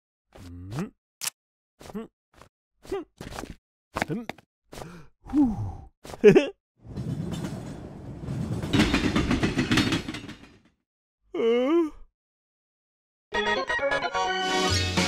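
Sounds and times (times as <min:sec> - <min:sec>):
speeding train wheel clatter: 0:06.9 - 0:10.4.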